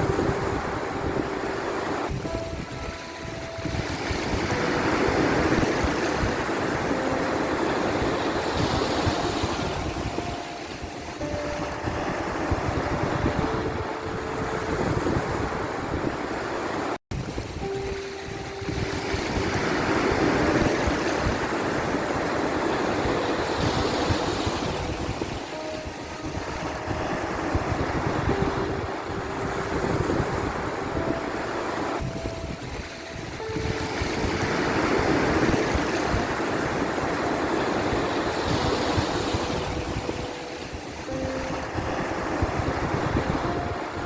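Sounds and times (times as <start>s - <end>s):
sea surf waves rushing: 0.0s - 44.0s.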